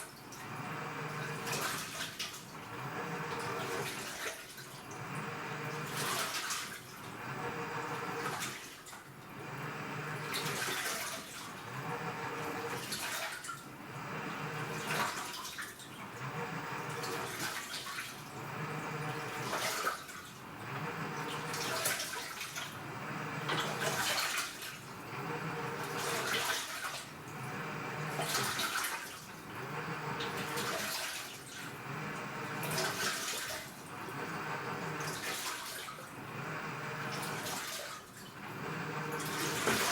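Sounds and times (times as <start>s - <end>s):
washing machine agitating: 0.0s - 39.9s
motor whirring: 0.4s - 1.6s, 2.6s - 3.8s, 4.9s - 6.2s, 7.1s - 8.4s, 9.3s - 10.6s, 11.5s - 12.8s, 13.8s - 15.0s, 16.0s - 17.3s, 18.3s - 19.6s, 20.6s - 21.8s, 22.8s - 24.0s, 25.0s - 26.3s, 27.3s - 28.6s, 29.5s - 30.7s, 31.7s - 33.0s, 33.9s - 35.2s, 36.2s - 37.5s, 38.4s - 39.9s.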